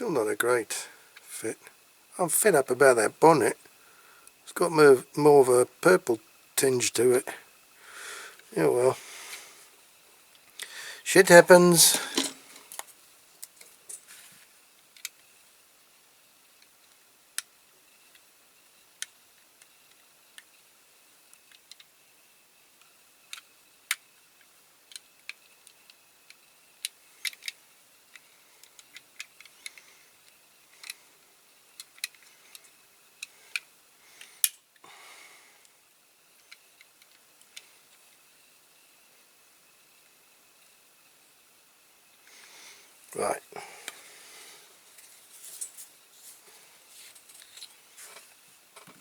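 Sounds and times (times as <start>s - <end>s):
small toy parts clicking: 21.3s - 22.0s, 22.8s - 31.0s, 31.6s - 33.8s, 36.3s - 38.2s.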